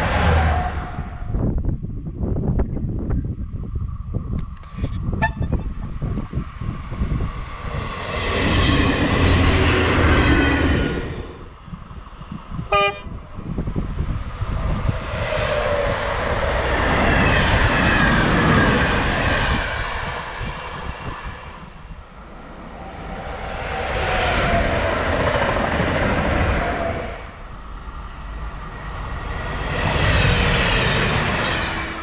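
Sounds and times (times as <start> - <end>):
trains passing on rails: 0.0 - 32.0
short train horn toot: 5.2 - 5.7, 12.7 - 13.1.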